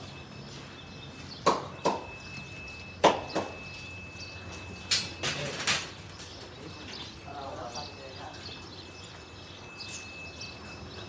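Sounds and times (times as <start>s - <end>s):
sharp knocks: 1.4s - 2.1s.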